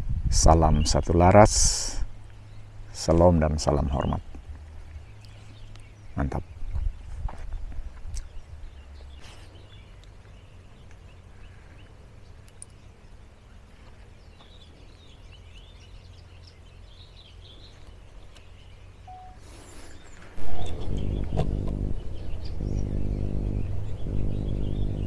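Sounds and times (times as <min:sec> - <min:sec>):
birds chirping and twittering: 0:00.0 - 0:25.0
low rumble: 0:20.3 - 0:25.0.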